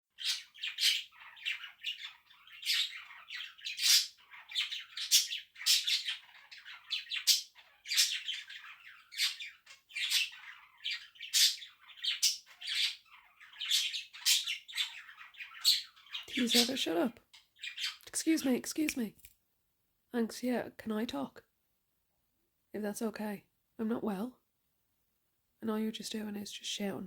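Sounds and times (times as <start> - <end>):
budgerigars squawking and chirping: 0.2 - 18.0.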